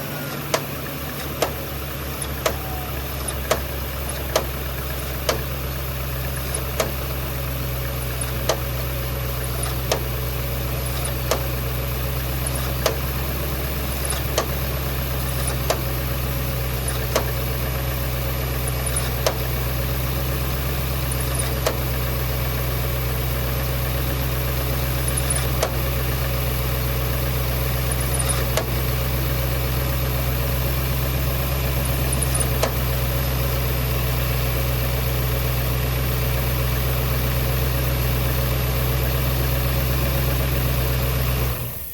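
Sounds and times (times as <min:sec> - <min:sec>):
car engine idling: 0:00.0 - 0:41.9
sharp clicks: 0:00.3 - 0:05.6, 0:06.2 - 0:07.3, 0:08.1 - 0:10.3, 0:10.9 - 0:11.6, 0:16.8 - 0:17.6, 0:25.0 - 0:26.1, 0:27.9 - 0:28.9, 0:32.0 - 0:32.9.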